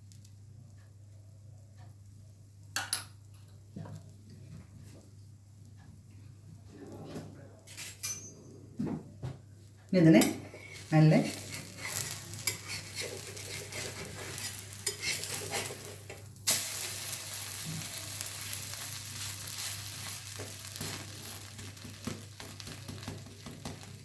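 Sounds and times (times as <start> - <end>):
bread sizzling in a pan: 9.9 - 24.0.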